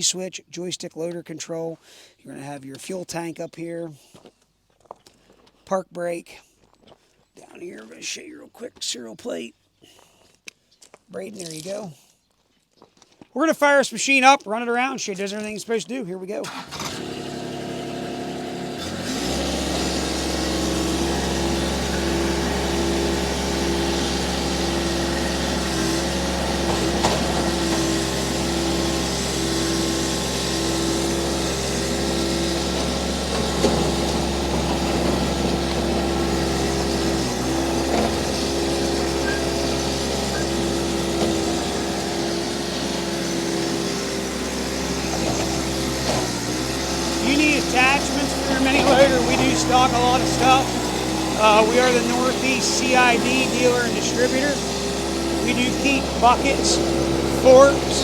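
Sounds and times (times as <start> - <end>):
diesel engine running: 16.5 - 58.0.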